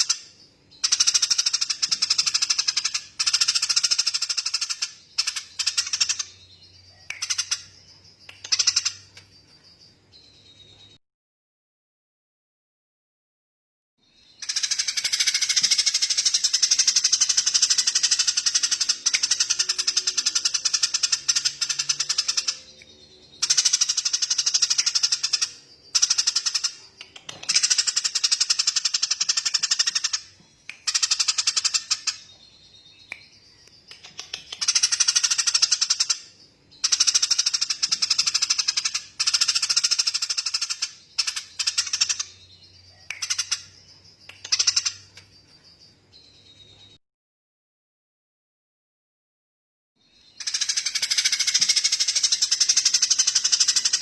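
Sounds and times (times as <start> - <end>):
songbird rattling trill: 0.0 - 10.0, 14.3 - 46.4, 50.2 - 54.0.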